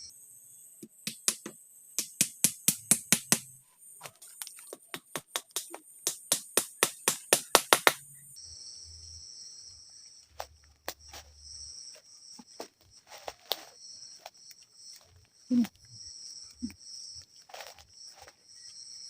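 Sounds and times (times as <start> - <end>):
forest insects chorus: 0.0 - 19.0
fast run of sharp knocks: 4.7 - 8.0.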